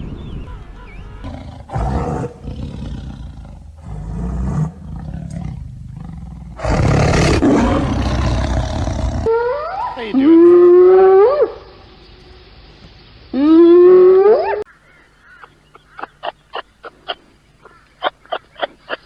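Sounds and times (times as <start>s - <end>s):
large animal roaring: 0.4s - 9.6s.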